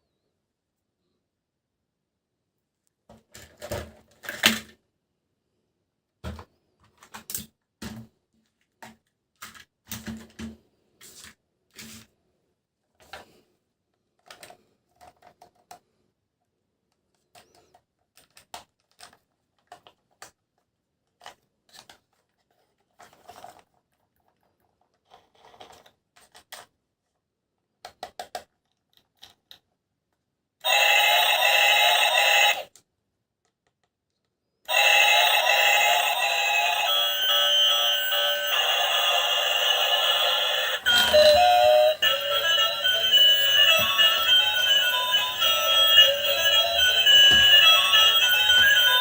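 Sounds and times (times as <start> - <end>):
plastic toys clicking: 17.2 - 20.4.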